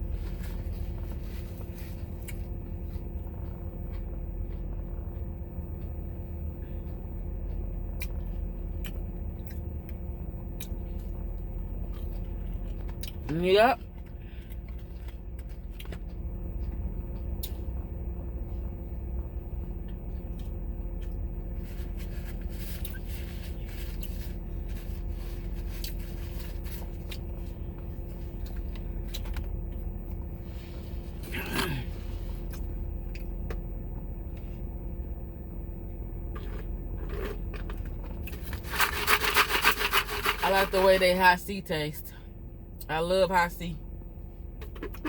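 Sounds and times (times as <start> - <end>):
crunching of fried food: 0.0 - 5.2, 6.8 - 33.7, 36.3 - 40.4
steady low hum: 0.0 - 45.0
packaging rustling: 38.3 - 40.4.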